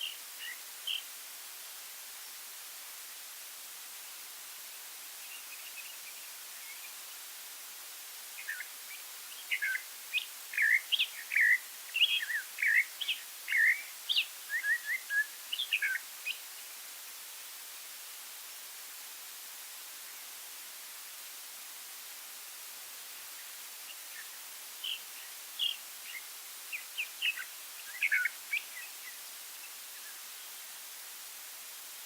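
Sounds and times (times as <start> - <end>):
songbird singing whistled notes: 0.0 - 1.1, 5.2 - 7.0, 8.4 - 16.5, 23.4 - 30.6
steady soft hiss: 0.0 - 32.0
faint bird calls: 23.9 - 30.3.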